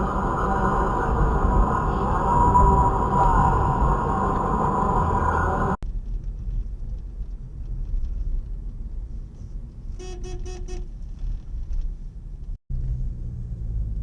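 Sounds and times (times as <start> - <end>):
vehicle driving rumble: 0.0 - 14.0
car horn short beeps: 10.0 - 10.9.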